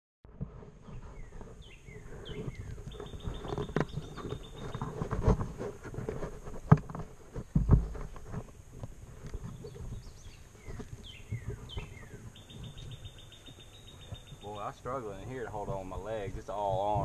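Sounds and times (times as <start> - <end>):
rustling: 0.3 - 17.0
birds chirping: 0.5 - 17.0
bird trill: 1.2 - 5.0, 9.6 - 15.3.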